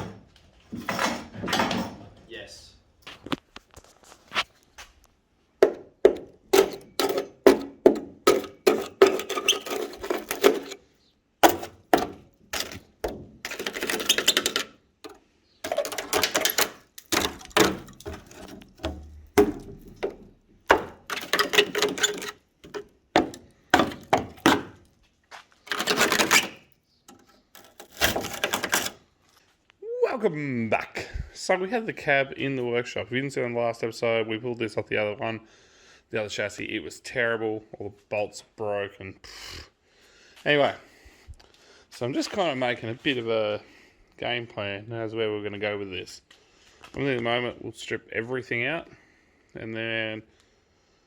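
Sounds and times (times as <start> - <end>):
knocks and thuds: 5.6 - 10.8, 11.4 - 24.8
scraping or rasping: 6.1 - 10.8, 11.4 - 24.8, 25.7 - 29.0.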